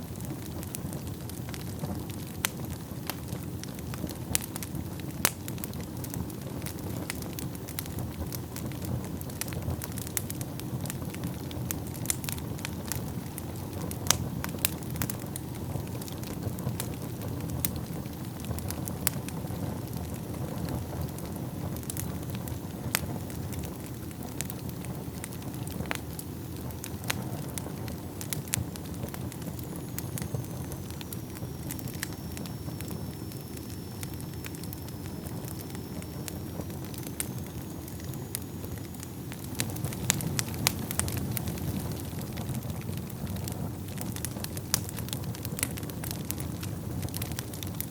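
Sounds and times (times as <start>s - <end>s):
wood fire crackling: 0.0s - 47.9s
faint high whistle: 29.0s - 41.3s.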